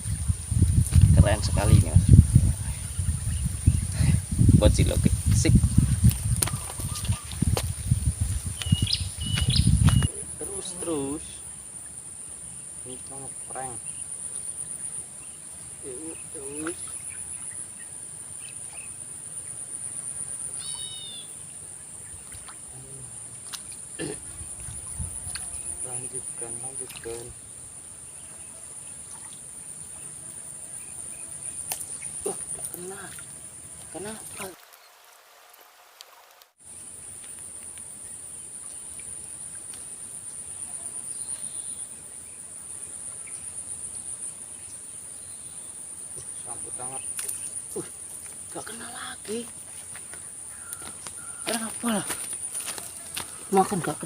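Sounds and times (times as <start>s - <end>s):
insects trilling: 0.0s - 54.0s.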